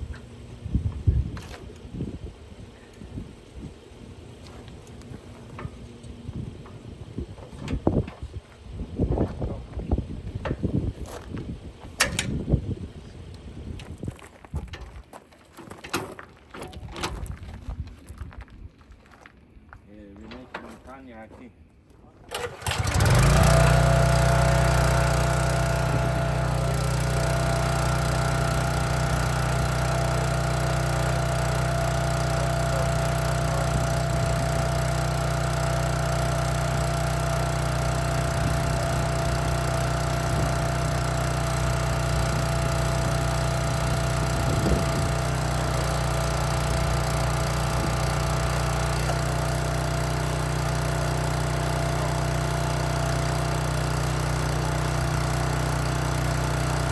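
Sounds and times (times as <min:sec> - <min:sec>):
small engine running: 0:22.3 - 0:56.9.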